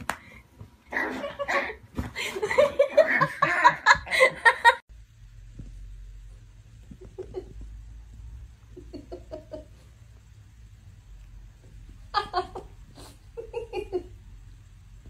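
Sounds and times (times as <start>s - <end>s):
faint low hum: 0.0s - 15.0s
person laughing hard: 1.1s - 4.8s.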